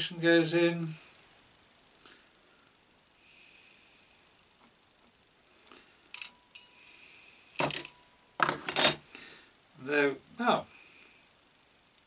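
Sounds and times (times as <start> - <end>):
soft breaths through the nose: 0.8 - 8.2, 9.0 - 9.7, 10.7 - 12.0.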